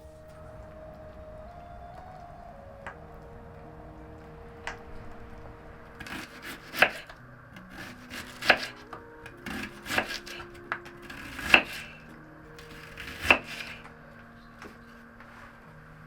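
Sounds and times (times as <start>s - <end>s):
chopping wood: 6.0s - 8.8s, 9.4s - 12.0s.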